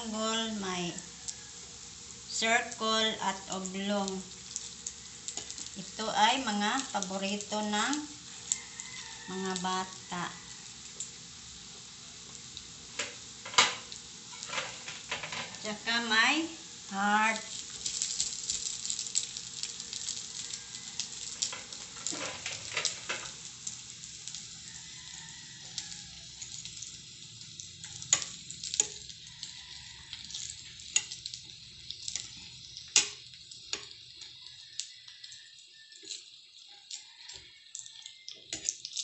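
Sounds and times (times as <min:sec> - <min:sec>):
food sizzling in frying oil: 0:00.0 - 0:39.0
metal turner scraping pan: 0:13.0 - 0:15.6, 0:21.4 - 0:23.4.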